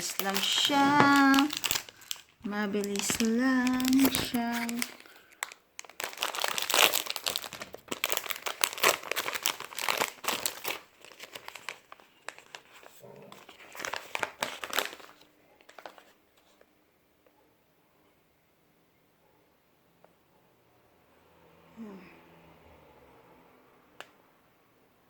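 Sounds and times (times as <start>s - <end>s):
popcorn packet crinkling: 0.0s - 16.6s.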